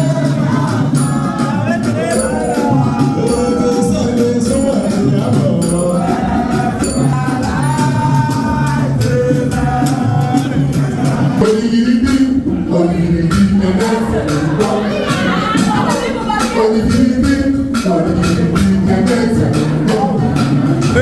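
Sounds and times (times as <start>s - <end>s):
hand percussion rattle: 0.0s - 10.5s
group of voices singing: 0.0s - 21.0s.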